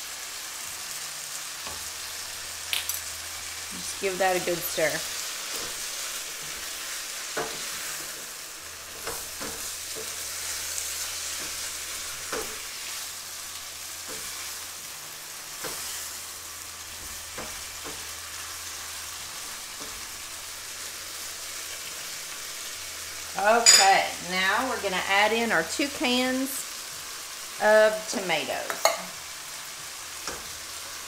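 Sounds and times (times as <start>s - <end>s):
food sizzling in a pan: 0.0s - 31.0s
spoon knocking against pan: 28.7s - 29.1s.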